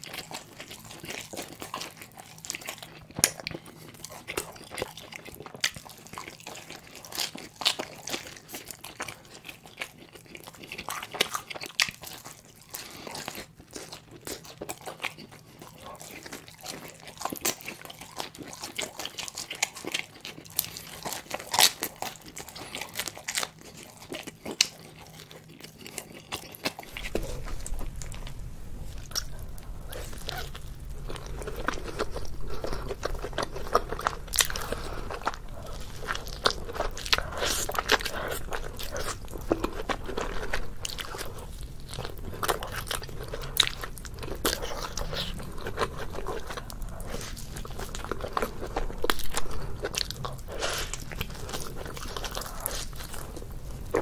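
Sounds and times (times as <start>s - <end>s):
biting and chewing pizza: 0.0s - 54.0s
low hum: 26.7s - 54.0s.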